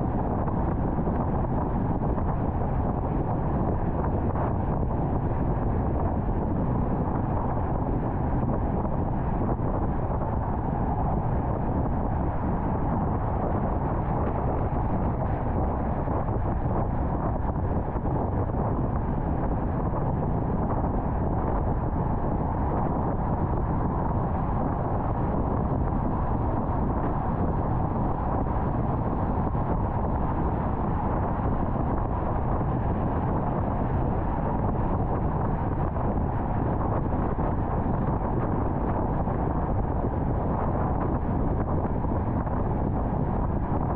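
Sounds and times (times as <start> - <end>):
car tyre and wind road noise: 0.0 - 43.9.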